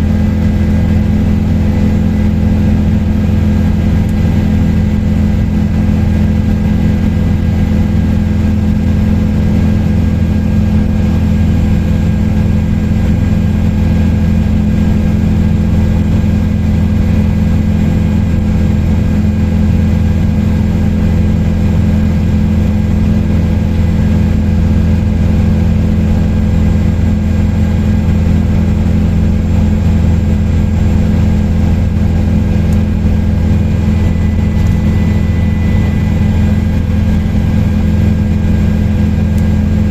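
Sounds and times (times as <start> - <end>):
helicopter rotor and engine drone: 0.0 - 39.9
thin steady whine: 19.2 - 39.9.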